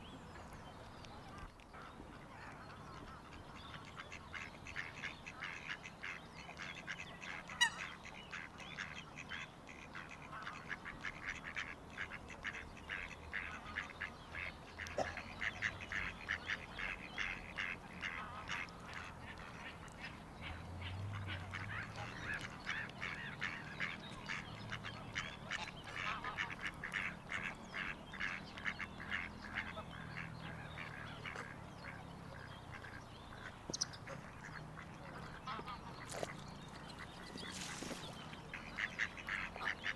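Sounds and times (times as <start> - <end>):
waterfowl flock calling: 2.9 - 39.9.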